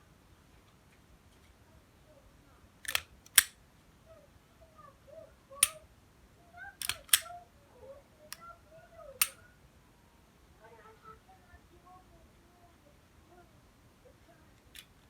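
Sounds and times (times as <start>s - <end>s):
sharp mechanical clicks: 2.8s - 3.6s, 6.8s - 7.3s.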